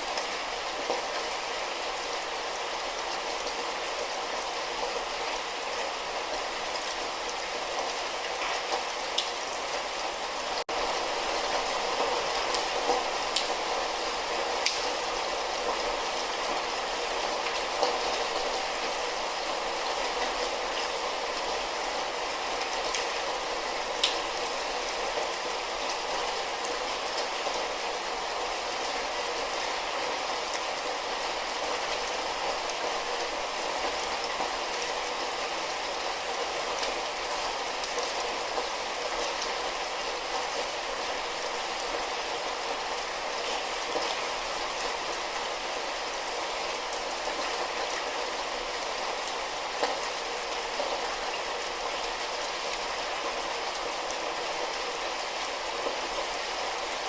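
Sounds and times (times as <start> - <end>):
light rain falling: 0.0 - 57.0.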